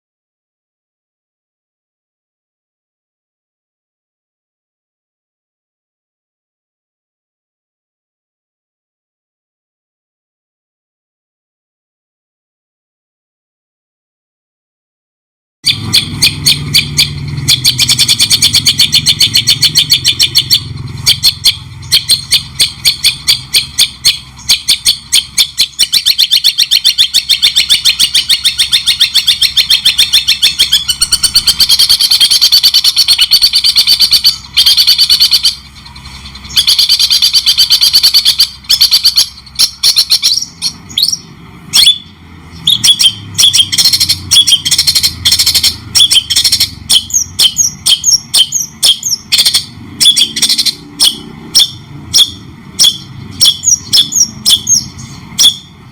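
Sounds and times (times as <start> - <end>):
bird singing chattering song: 15.6 - 55.9.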